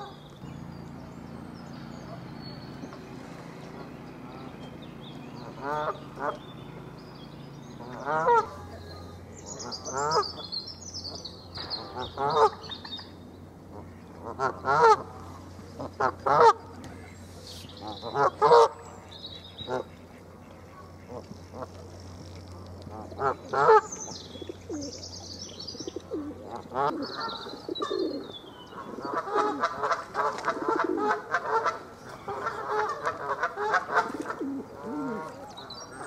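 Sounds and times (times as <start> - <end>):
small birds chirping: 0.0 - 36.0
harsh honking bird calls: 7.6 - 10.5, 26.4 - 35.4.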